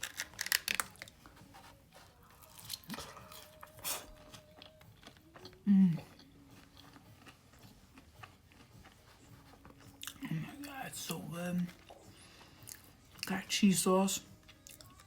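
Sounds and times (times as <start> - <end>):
chewing and crunching food: 0.0 - 13.5, 14.2 - 15.0
person humming: 5.4 - 6.3.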